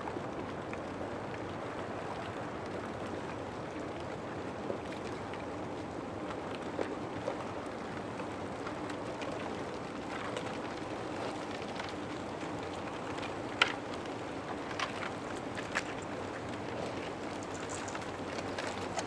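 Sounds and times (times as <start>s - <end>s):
ice grinding and shifting: 17.0s - 19.0s
ice pieces clinking and knocking: 17.4s - 18.2s.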